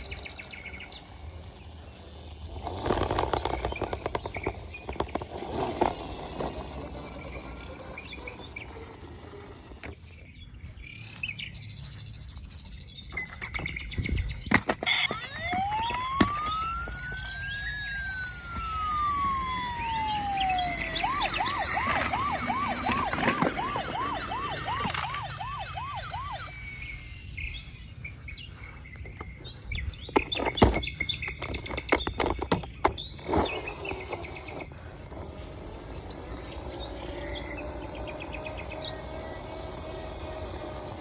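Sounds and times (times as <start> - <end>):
toy police car siren warbling: 0.0 - 9.9, 14.7 - 27.3, 33.1 - 41.0
sharp plastic clicks and knocks: 2.5 - 8.1, 30.0 - 34.7.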